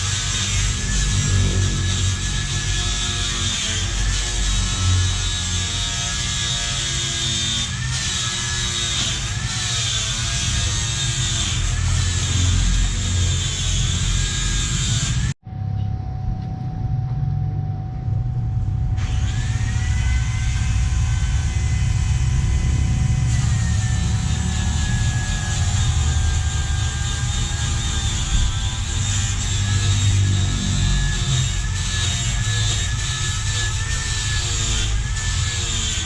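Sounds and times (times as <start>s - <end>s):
motorcycle engine rumble: 15.4s - 26.2s.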